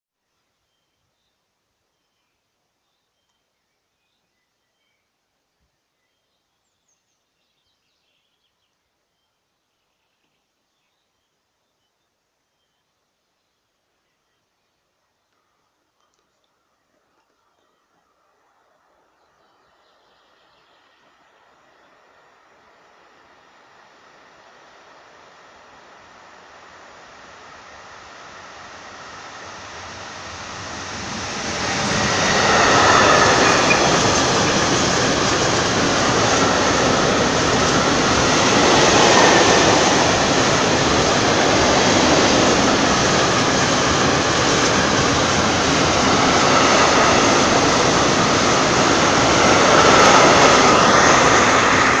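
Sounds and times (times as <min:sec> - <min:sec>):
train wheels on rail: 0:24.8 - 0:52.0.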